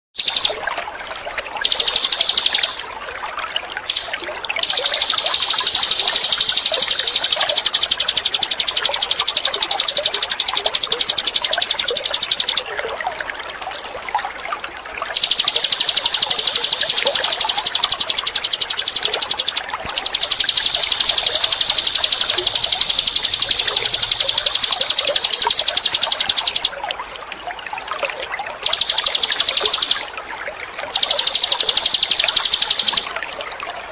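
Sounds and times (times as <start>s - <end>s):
songbird trilling: 0.2s - 0.6s, 1.6s - 2.8s, 3.9s - 12.6s, 15.2s - 26.8s, 28.6s - 30.1s, 31.0s - 33.2s
trickling water: 0.2s - 33.9s.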